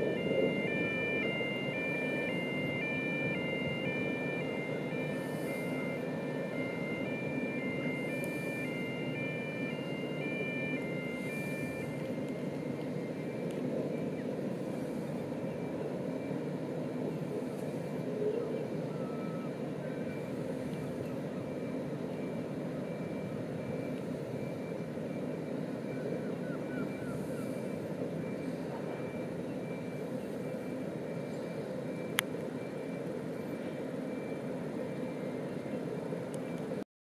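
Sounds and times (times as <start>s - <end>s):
distant train rumbling past: 0.0s - 36.8s.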